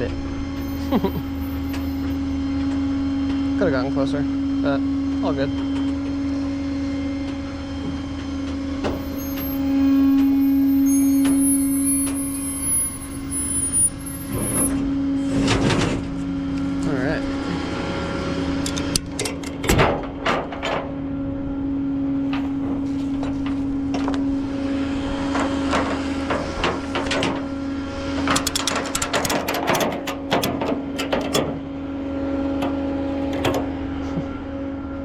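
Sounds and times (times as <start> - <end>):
machine humming: 0.0 - 19.6, 20.9 - 35.0
metal clanks and knocks: 18.6 - 21.0, 28.2 - 31.6, 32.6 - 33.8.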